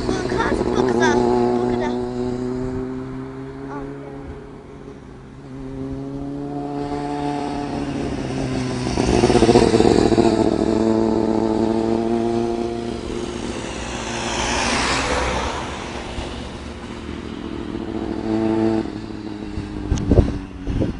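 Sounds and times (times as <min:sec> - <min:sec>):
motorcycle engine running: 0:00.0 - 0:04.3, 0:05.6 - 0:14.4.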